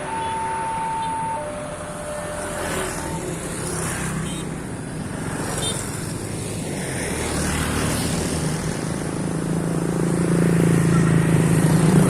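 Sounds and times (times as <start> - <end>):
train engine drone: 0.0 - 5.1.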